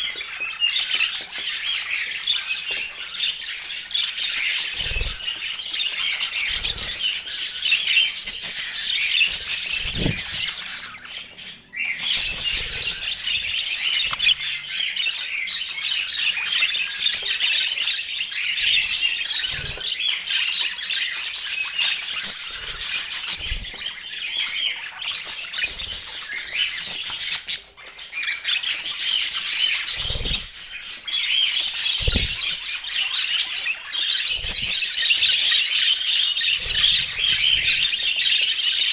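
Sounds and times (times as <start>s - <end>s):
budgerigars chattering and squawking: 0.0s - 38.9s.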